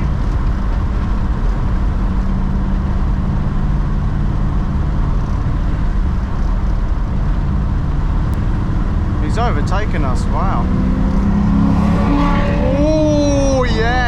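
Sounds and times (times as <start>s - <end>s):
car engine drone: 0.0s - 14.0s
road rumble inside car: 0.0s - 14.0s.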